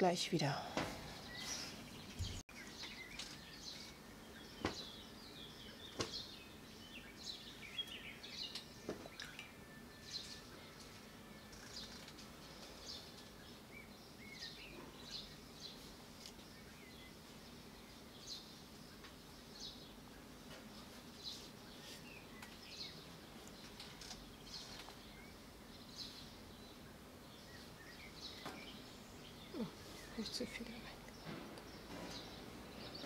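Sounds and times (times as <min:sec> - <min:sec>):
faint bird chirps: 0:27.4 - 0:31.3.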